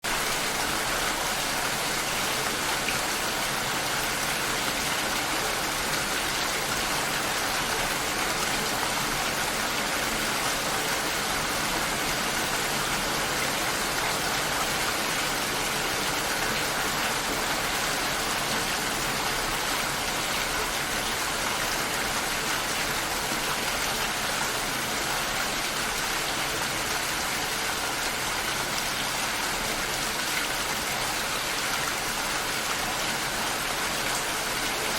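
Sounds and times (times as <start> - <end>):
rain pattering: 0.0 - 34.9.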